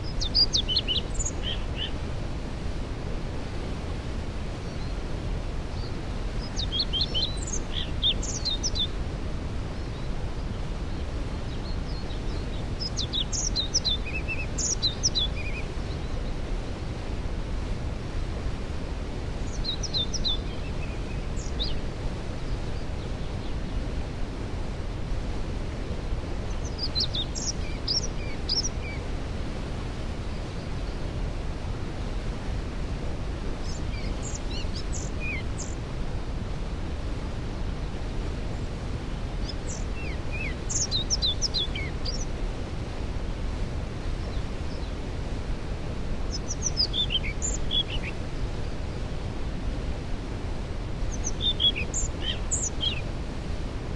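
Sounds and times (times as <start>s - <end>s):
songbird singing: 0.0s - 2.6s, 4.5s - 16.8s, 19.1s - 24.1s, 26.0s - 42.8s, 43.6s - 49.7s, 50.7s - 53.9s
waterfall rushing: 0.0s - 53.9s.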